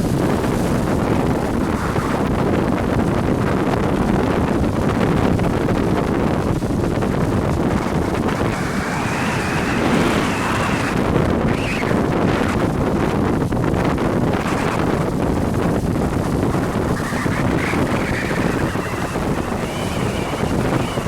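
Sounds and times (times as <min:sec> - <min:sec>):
jet ski running: 0:00.0 - 0:21.0
wind buffeting microphone: 0:00.0 - 0:21.0
high whine rising in pitch: 0:07.0 - 0:12.8, 0:16.2 - 0:21.0.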